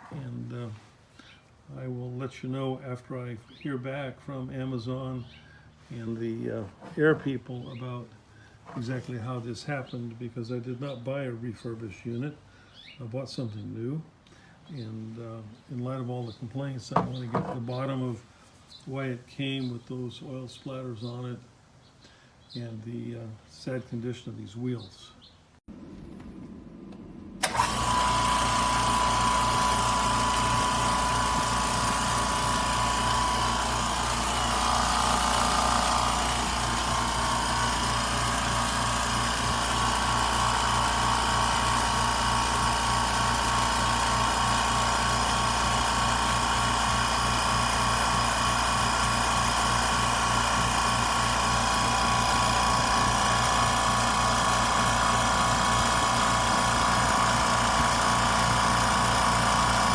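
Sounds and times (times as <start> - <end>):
air compressor running: 25.7 - 59.9.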